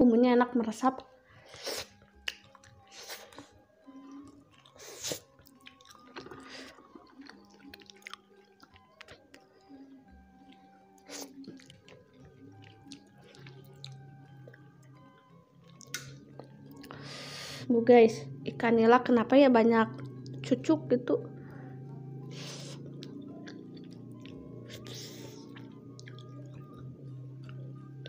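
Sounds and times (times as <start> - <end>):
mouth smacks and clicks: 1.8 - 2.8, 15.6 - 16.2
person chewing wetly: 1.8 - 9.7, 10.3 - 14.8, 15.6 - 17.1, 22.2 - 27.7.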